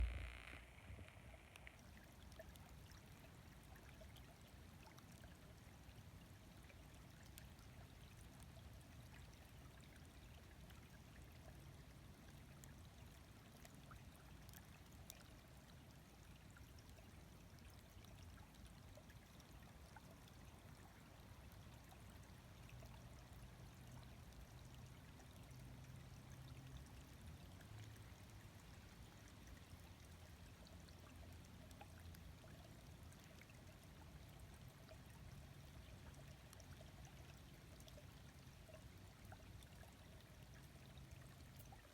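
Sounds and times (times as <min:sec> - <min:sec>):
light ticks: 0:00.0 - 0:01.8
faint running water: 0:00.0 - 0:41.9.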